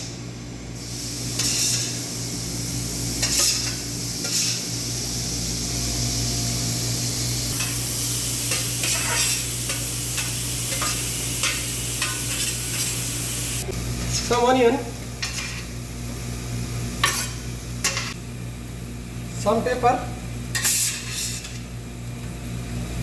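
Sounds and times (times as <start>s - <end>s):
meat sizzling in a pan: 0.8s - 14.4s.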